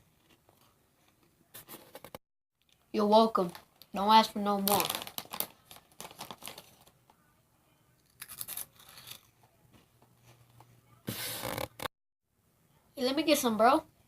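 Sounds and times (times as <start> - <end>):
snack bag rustling and crackling: 4.4 - 7.0.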